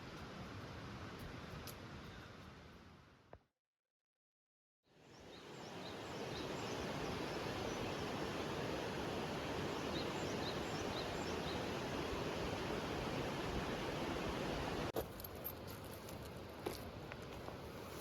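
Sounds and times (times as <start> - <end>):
rushing forest background noise: 4.9 - 18.0
small birds chirping: 5.1 - 8.5, 9.6 - 12.2.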